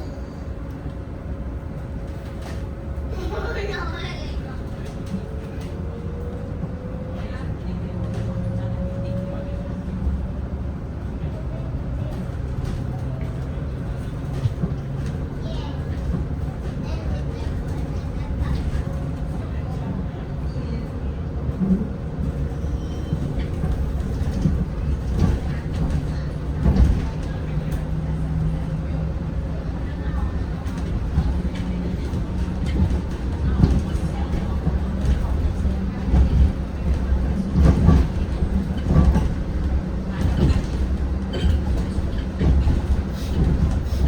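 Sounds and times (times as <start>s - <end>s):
bus low rumble: 0.0s - 44.0s.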